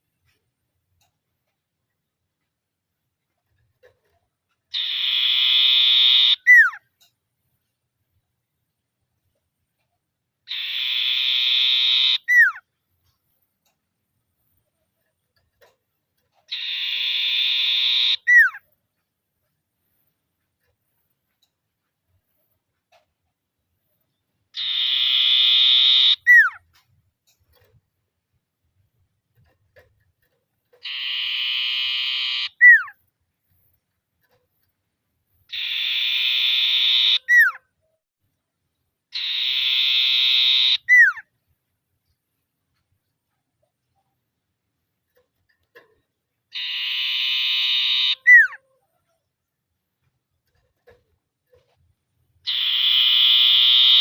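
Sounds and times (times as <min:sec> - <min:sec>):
bird buzzy trill call: 0:04.7 - 0:06.8, 0:10.5 - 0:12.6, 0:16.5 - 0:18.6, 0:24.6 - 0:26.6, 0:30.8 - 0:33.0, 0:35.5 - 0:37.6, 0:39.1 - 0:41.3, 0:46.5 - 0:48.6, 0:52.4 - 0:54.0
falling bird whistle: 0:04.7 - 0:06.8, 0:10.5 - 0:12.6, 0:16.6 - 0:18.6, 0:24.6 - 0:26.6, 0:30.8 - 0:33.0, 0:35.5 - 0:37.6, 0:39.1 - 0:41.2, 0:46.5 - 0:48.6, 0:52.5 - 0:54.0.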